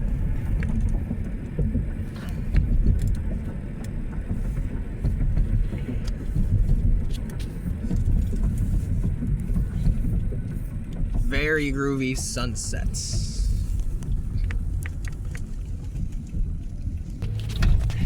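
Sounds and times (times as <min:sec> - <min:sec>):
car road rumble from cabin: 0:00.0 - 0:18.0.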